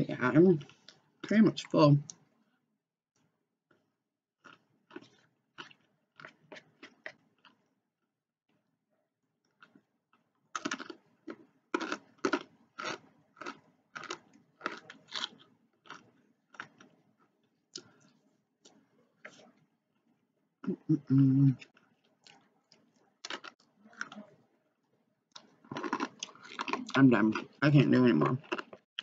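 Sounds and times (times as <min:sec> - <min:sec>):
crisp chewing and crunching: 0:04.4 - 0:07.6, 0:09.5 - 0:17.0, 0:21.6 - 0:24.4, 0:25.3 - 0:29.0.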